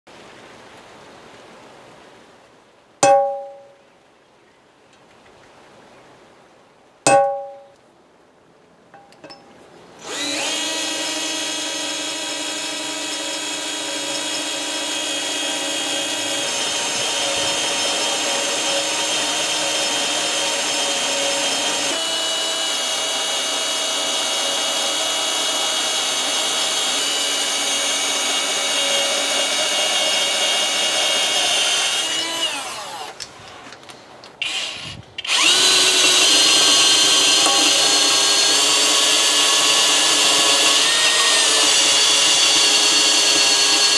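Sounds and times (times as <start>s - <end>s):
electric power tool running: 10.0s - 33.2s, 34.4s - 43.9s.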